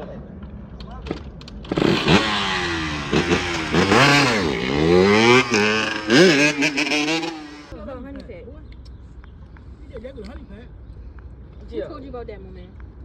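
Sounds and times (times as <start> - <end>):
dirt bike engine revving: 1.7 - 7.7.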